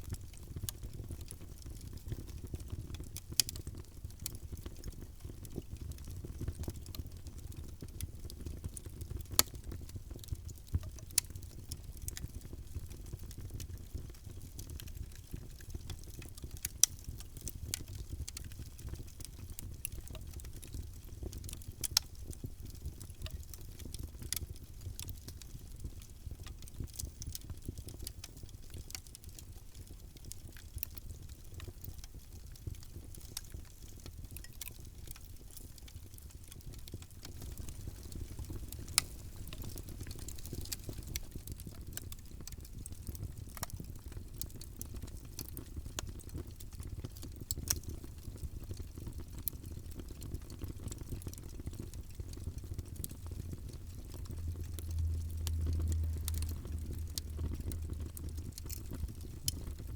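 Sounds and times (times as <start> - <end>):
fire crackling: 0.3 - 59.9
fire popping: 4.4 - 59.9
low fire roar: 35.9 - 46.8, 48.6 - 59.9.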